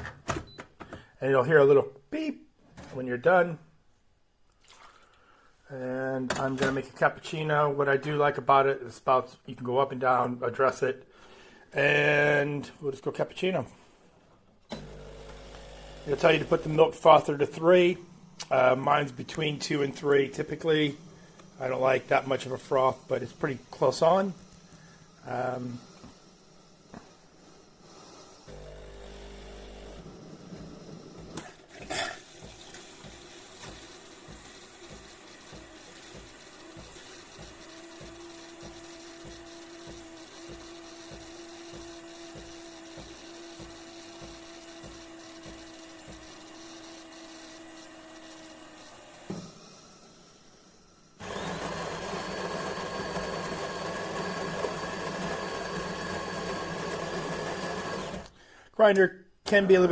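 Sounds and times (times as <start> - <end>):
espresso machine pump hum: 14.8 - 16.8, 20.9 - 31.3, 32.3 - 49.7, 51.2 - 58.3
coffee grinder whirring: 14.8 - 17.2, 20.6 - 58.4
milk frother steam hiss: 32.2 - 48.9, 51.2 - 58.3.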